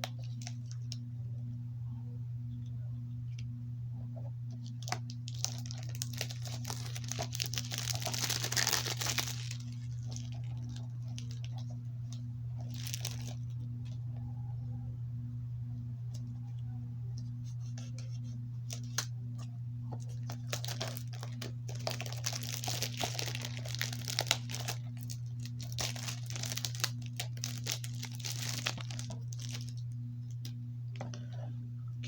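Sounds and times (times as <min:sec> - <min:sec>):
plastic wrap crinkling: 0:00.0 - 0:01.0, 0:04.5 - 0:14.0, 0:20.0 - 0:29.9
steady low hum: 0:00.0 - 0:32.0.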